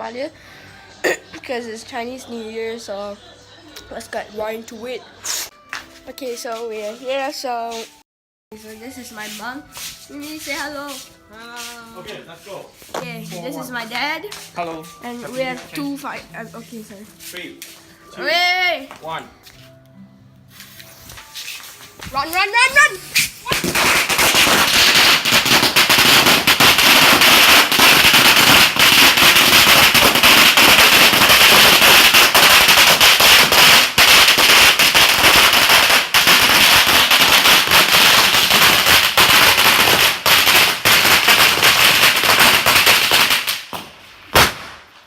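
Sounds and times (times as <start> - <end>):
firecrackers banging: 12.9 - 16.9, 22.0 - 45.0.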